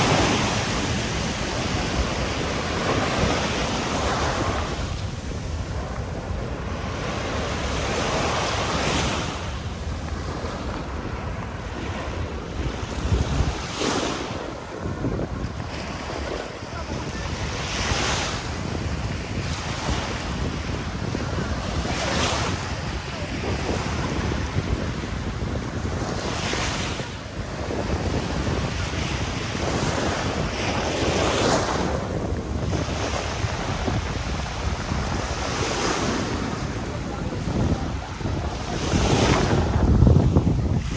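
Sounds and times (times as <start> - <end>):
waves breaking on a beach: 0.0 - 40.9
wind rumbling on microphone: 0.0 - 40.9.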